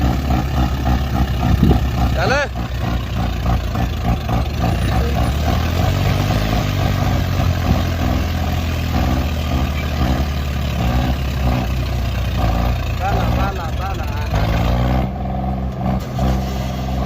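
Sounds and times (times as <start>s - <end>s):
diesel tractor engines running hard: 0.0s - 17.0s.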